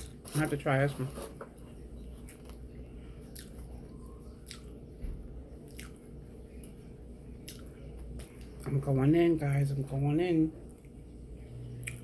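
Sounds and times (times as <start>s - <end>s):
low steady hum: 0.0s - 12.0s
person chewing: 1.5s - 4.9s, 5.6s - 8.7s, 11.8s - 12.0s.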